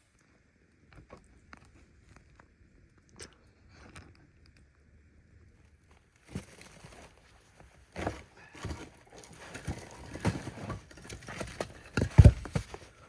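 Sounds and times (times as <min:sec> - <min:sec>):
firewood crunching and knocking: 0:06.2 - 0:13.0.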